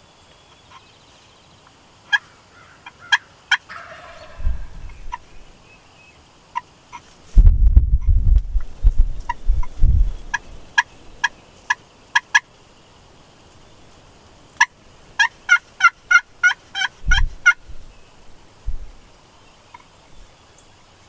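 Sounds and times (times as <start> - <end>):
wild turkey yelps: 2.1 - 5.4, 14.6 - 17.6
low thumps: 4.3 - 5.4, 7.4 - 10.1.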